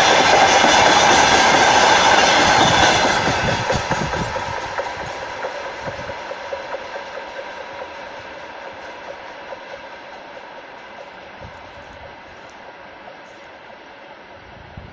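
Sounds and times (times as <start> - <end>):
freight train wheels clattering: 0.0 - 12.6
faint ringing tone: 5.5 - 13.5.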